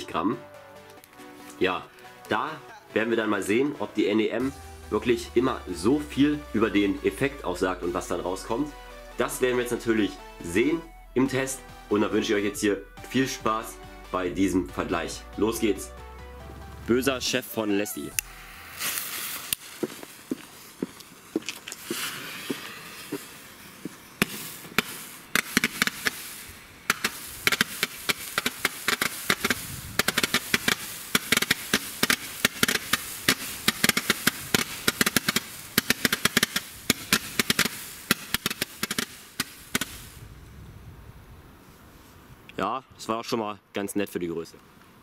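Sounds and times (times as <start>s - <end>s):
firework shots: 18.2s - 40.2s
fuse hissing: 18.2s - 40.3s.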